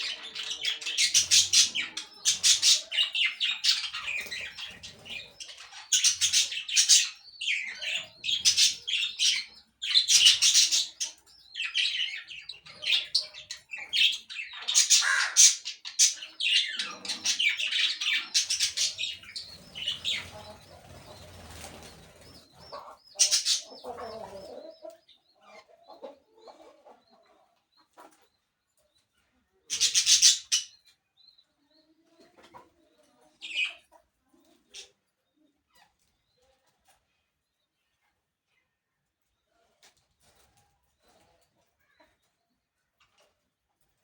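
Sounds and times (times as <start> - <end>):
parakeets squawking: 0.0 - 12.2, 13.9 - 20.7, 22.8 - 24.5, 29.7 - 30.7
soft chirps and warbling chatter: 0.0 - 43.9
wings flapping and rustling: 19.5 - 22.5.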